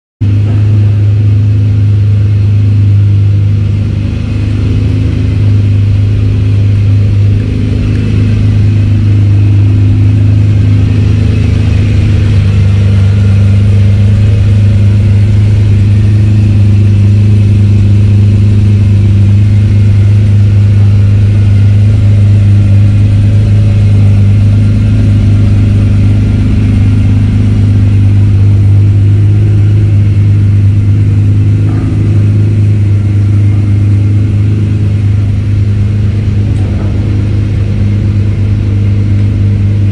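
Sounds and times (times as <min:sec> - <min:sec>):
car engine idling: 0:00.2 - 0:39.9.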